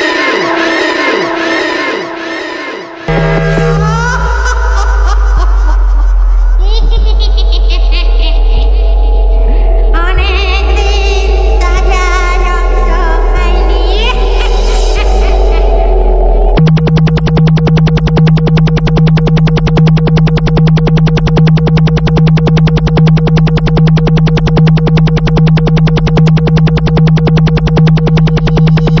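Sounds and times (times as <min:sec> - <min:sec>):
pulsing synthesizer music: 0:03.1 - 0:05.2, 0:16.6 - 0:29.0.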